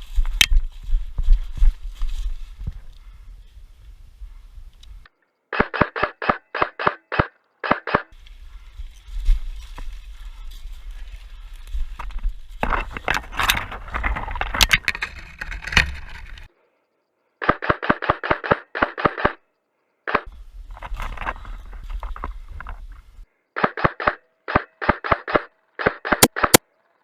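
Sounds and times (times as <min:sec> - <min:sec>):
rustling movement: 0:00.0 - 0:05.0, 0:08.1 - 0:16.5, 0:20.3 - 0:23.3
airsoft gun shots: 0:05.5 - 0:08.1, 0:17.4 - 0:19.4, 0:23.6 - 0:26.6
clicks: 0:23.6 - 0:26.6.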